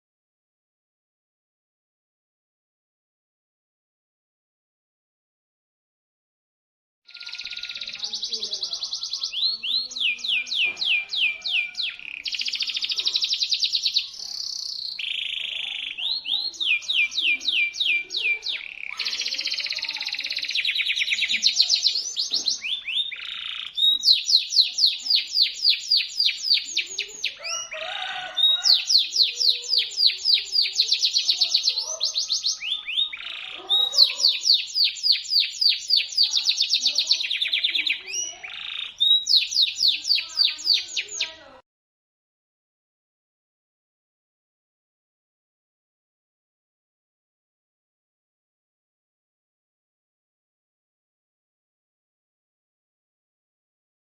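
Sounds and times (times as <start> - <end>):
canary singing trills: 7.1 - 41.6.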